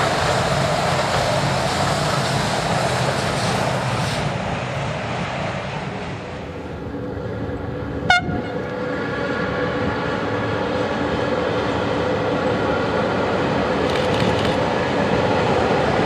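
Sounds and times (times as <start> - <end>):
train whine and rolling: 0.0 - 16.0
train horn toot: 8.0 - 8.7.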